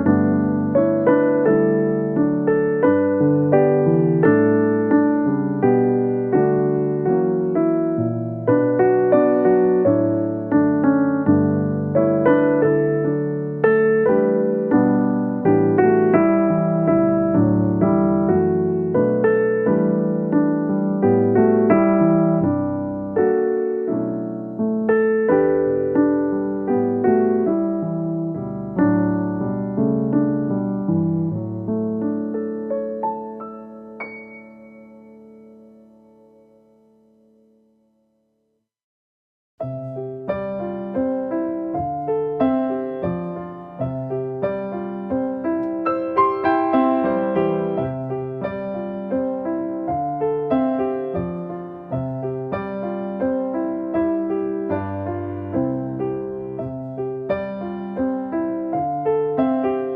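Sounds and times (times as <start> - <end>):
electric piano melody: 0.0 - 37.9, 39.6 - 59.9.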